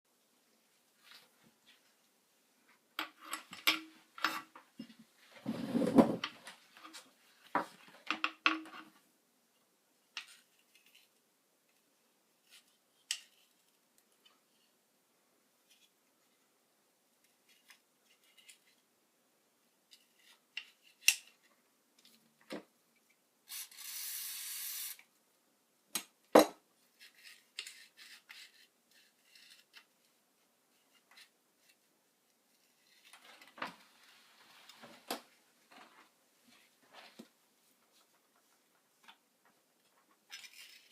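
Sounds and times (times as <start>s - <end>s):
scraping on workbench: 5.4s - 6.3s.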